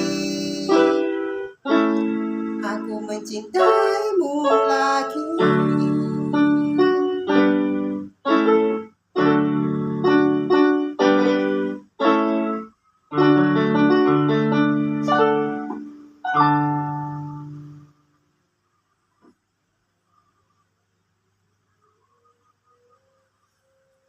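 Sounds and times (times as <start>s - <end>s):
solo piano chords: 0.0s - 18.0s.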